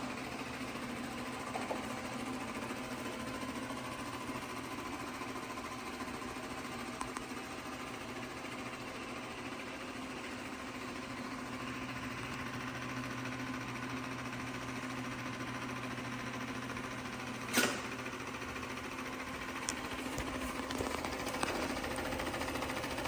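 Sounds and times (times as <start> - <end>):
robot vacuum running: 16.6 - 23.0.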